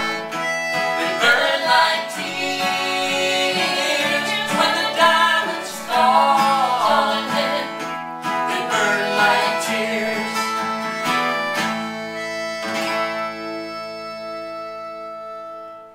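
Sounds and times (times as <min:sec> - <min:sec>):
acoustic guitar strumming: 0:00.0 - 0:15.9.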